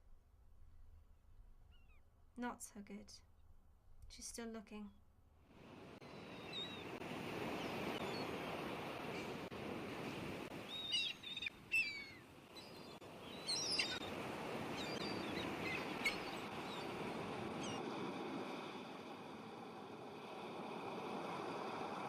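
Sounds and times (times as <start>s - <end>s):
seagulls calling: 10.6s - 17.0s.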